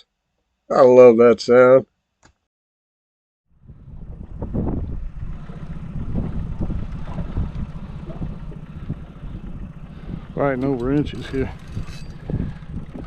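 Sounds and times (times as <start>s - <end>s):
wind rumbling on microphone: 3.5s - 13.0s
fishing line singing in wind: 3.6s - 13.0s.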